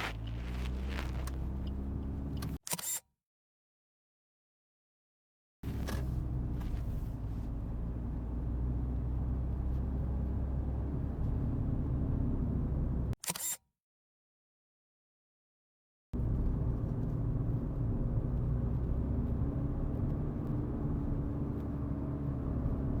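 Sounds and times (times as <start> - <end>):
car interior rumble: 0.0 - 2.6, 16.2 - 23.0.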